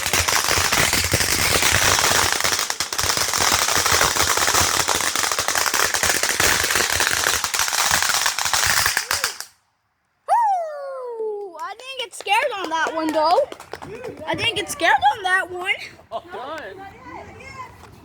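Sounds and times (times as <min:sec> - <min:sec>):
firework crackling pops: 0:00.0 - 0:09.6.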